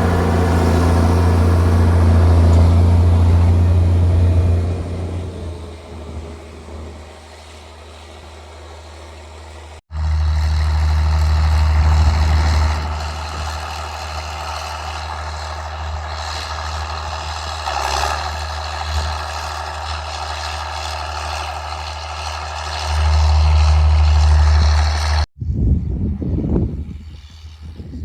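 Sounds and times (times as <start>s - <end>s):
diesel tractor engine running: 0.0s - 25.3s
gusty noise: 22.8s - 28.0s.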